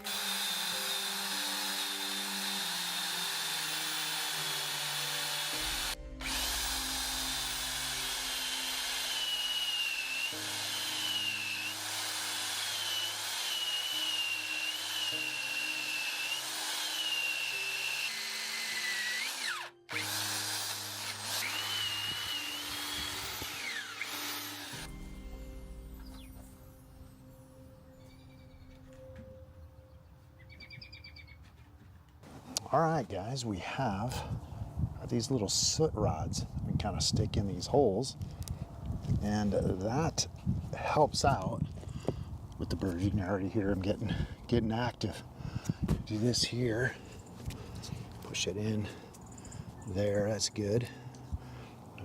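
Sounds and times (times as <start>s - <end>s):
power drill boring into log: 0.0s - 24.9s.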